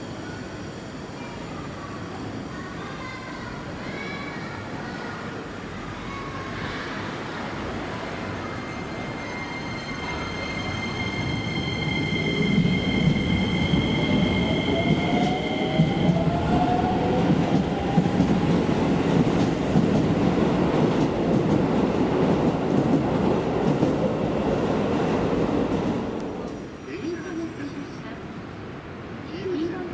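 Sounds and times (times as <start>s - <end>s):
electric train rumble: 7.4s - 29.9s
steady high tones: 8.1s - 17.0s.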